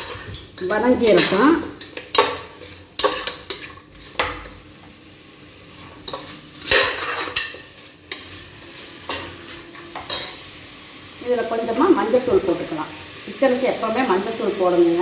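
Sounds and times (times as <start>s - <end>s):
spatula scraping a pot: 0.0s - 4.6s, 5.7s - 10.4s
faint sizzle: 0.0s - 15.0s.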